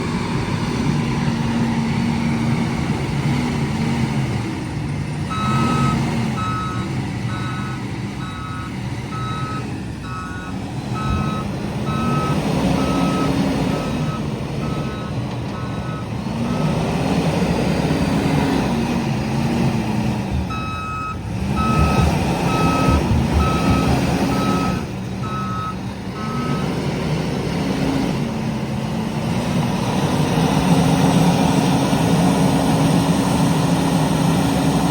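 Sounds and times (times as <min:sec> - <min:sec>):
diesel engine revving: 0:00.0 - 0:34.9
reversing alarm beeping: 0:05.3 - 0:16.9, 0:20.5 - 0:26.8.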